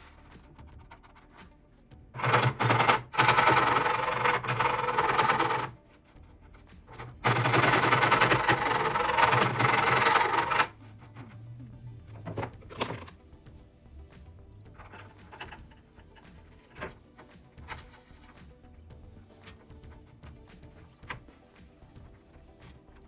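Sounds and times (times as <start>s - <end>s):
power tool with mechanical chatter: 2.2s - 5.8s, 7.0s - 10.7s.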